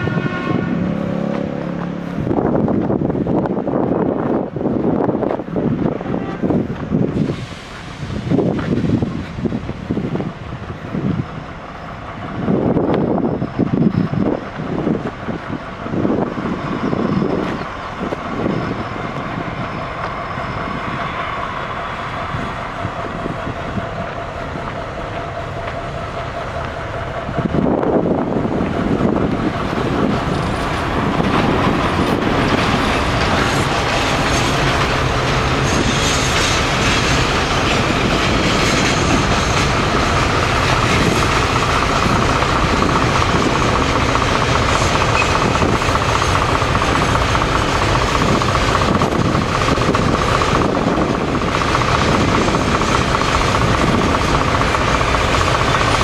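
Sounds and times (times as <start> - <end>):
clickety-clack over rail joints: 0.0 - 56.0
diesel locomotive engine running: 0.0 - 56.0
wagons rumbling on rails: 0.0 - 56.0
high wheel squeal: 10.9 - 24.0, 29.0 - 56.0.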